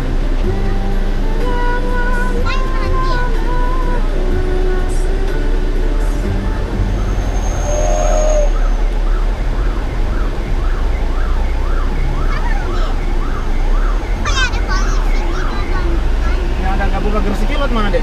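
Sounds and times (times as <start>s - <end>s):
road and engine drone: 0.0s - 18.0s
siren yelping: 7.0s - 16.4s.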